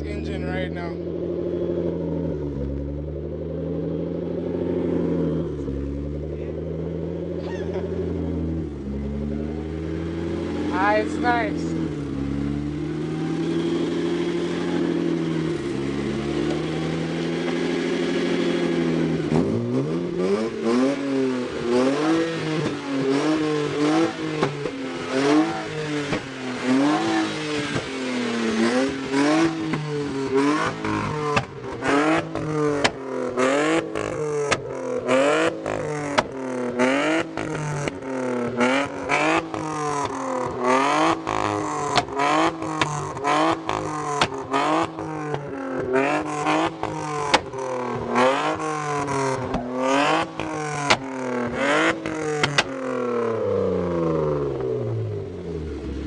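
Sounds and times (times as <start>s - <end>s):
car engine revving: 0.0s - 56.0s
exhaust crackles and pops: 2.4s - 3.5s, 15.8s - 17.8s, 25.5s - 52.9s.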